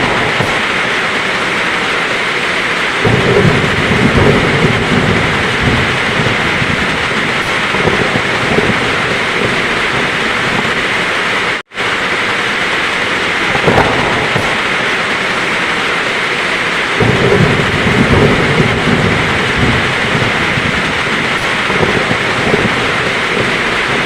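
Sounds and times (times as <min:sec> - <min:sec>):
heavy rain pouring: 0:00.0 - 0:24.0
thunder rumbling: 0:00.0 - 0:24.0.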